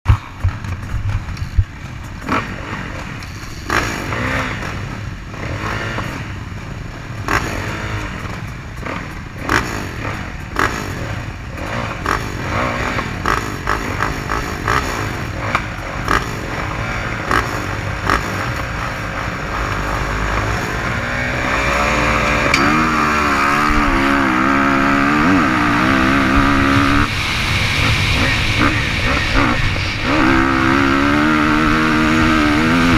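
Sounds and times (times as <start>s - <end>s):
knocks and clatter: 0.0s - 6.2s
dirt bike engine revving: 0.1s - 32.9s
rumbling background: 0.1s - 32.9s.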